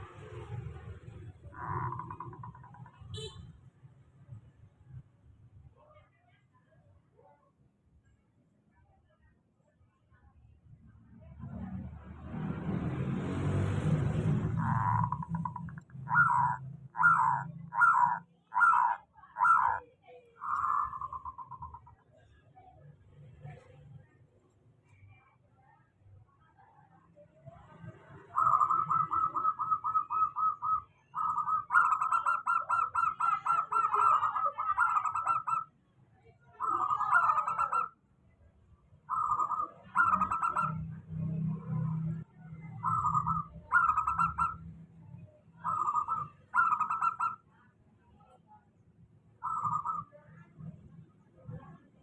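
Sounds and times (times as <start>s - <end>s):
dove cooing rapidly: 1.4s - 3.0s, 14.4s - 22.0s, 28.3s - 35.7s, 36.6s - 38.0s, 39.1s - 40.9s, 42.7s - 44.6s, 45.6s - 47.4s, 49.4s - 50.2s.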